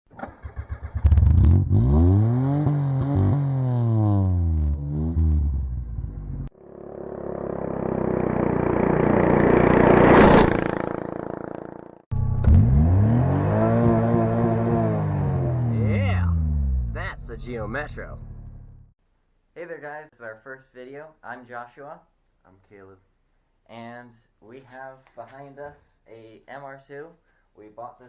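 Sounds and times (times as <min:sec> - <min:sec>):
car engine revving: 0:00.5 - 0:18.9
rushing noise: 0:08.4 - 0:11.2.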